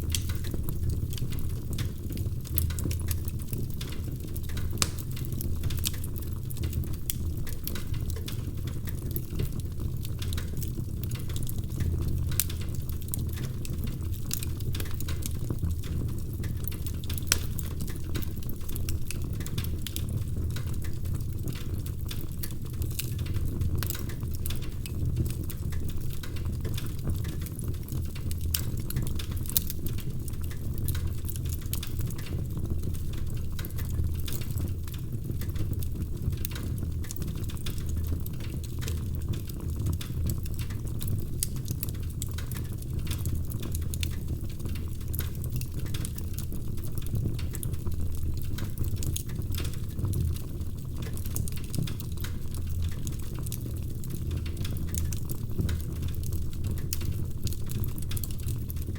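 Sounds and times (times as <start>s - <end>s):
low rumble of flames: 0.0s - 58.9s
wood fire crackling: 0.0s - 58.9s.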